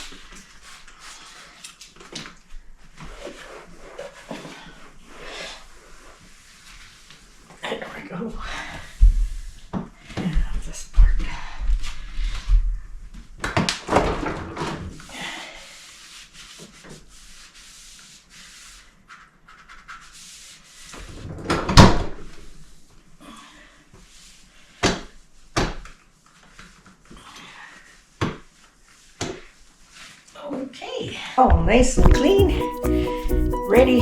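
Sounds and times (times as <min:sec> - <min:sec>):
cloth wiping refrigerator: 0:15.7 - 0:21.2.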